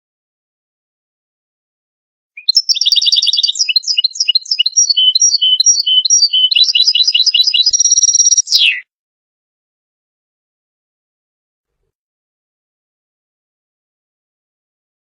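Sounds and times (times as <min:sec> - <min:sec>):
bird singing twittering trills: 0:02.4 - 0:08.8.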